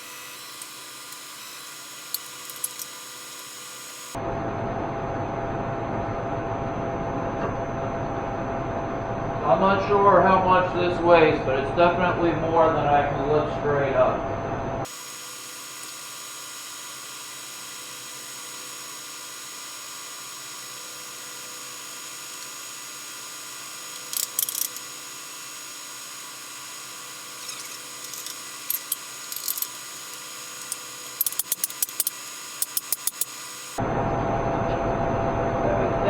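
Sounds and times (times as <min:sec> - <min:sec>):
shop hum with fixed tones: 0:00.0 - 0:36.0
sharp metallic clicks and clinks: 0:00.5 - 0:03.6, 0:23.9 - 0:24.9, 0:27.3 - 0:33.5.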